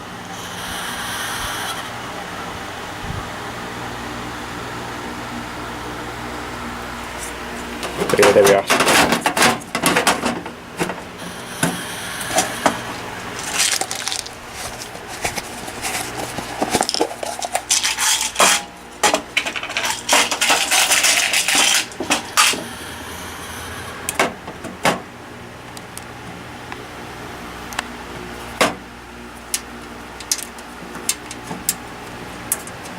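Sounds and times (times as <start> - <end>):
metal parts scraping: 7.2 - 23.4, 30.2 - 31.8.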